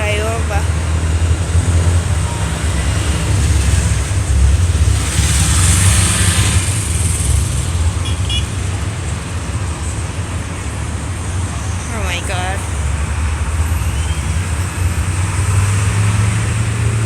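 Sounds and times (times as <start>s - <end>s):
road traffic rumble: 0.0s - 17.0s
vehicle passing close: 0.1s - 8.7s, 12.0s - 17.0s.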